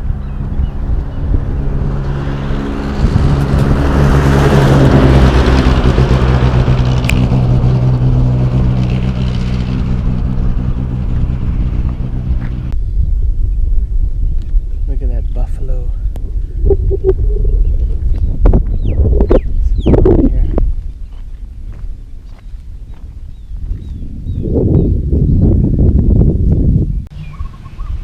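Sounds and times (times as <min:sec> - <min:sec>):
vehicle engine hum: 0:00.0 - 0:14.8, 0:16.0 - 0:24.4
rushing noise: 0:16.5 - 0:18.1.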